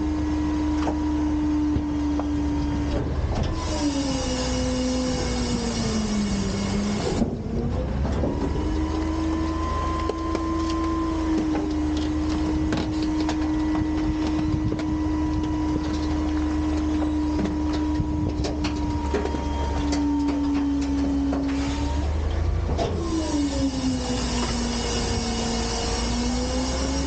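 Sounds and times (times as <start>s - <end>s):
garbage truck whine and engine drone: 0.0s - 27.0s.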